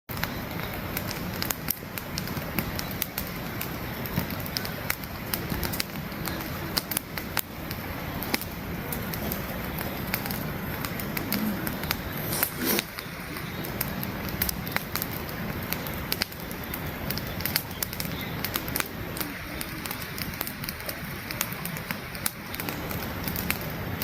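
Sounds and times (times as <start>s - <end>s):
campfire crackling: 0.1s - 24.0s
low rushing noise: 7.0s - 24.0s.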